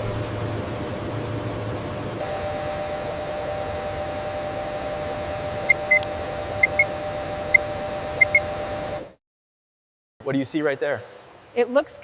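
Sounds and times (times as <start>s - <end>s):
low two-note hum: 0.0s - 9.2s
short high electronic beeps: 5.7s - 6.9s, 8.2s - 8.5s.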